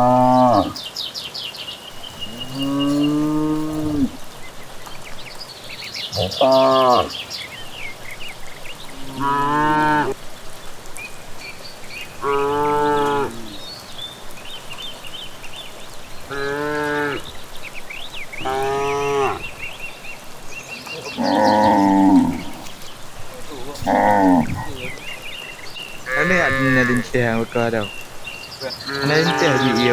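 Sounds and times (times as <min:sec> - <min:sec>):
cattle mooing: 0:00.0 - 0:00.8, 0:02.2 - 0:04.2, 0:06.2 - 0:07.1, 0:08.9 - 0:10.2, 0:12.2 - 0:13.6, 0:16.3 - 0:17.3, 0:18.4 - 0:19.5, 0:21.2 - 0:22.8, 0:23.7 - 0:25.0, 0:26.0 - 0:27.6, 0:28.8 - 0:29.9
birds chirping: 0:00.0 - 0:29.9.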